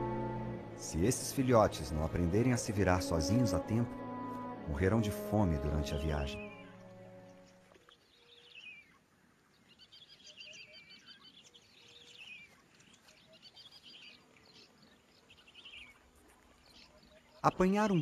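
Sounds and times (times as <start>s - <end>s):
small birds twittering: 6.2s - 18.0s.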